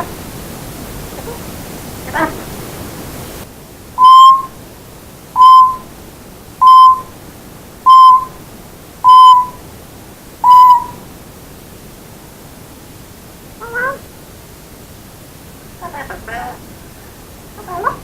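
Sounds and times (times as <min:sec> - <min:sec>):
parrot whistling beep-like notes: 0:04.0 - 0:04.6, 0:05.4 - 0:05.9, 0:06.6 - 0:07.1, 0:07.9 - 0:08.4, 0:09.0 - 0:09.6, 0:10.4 - 0:11.0.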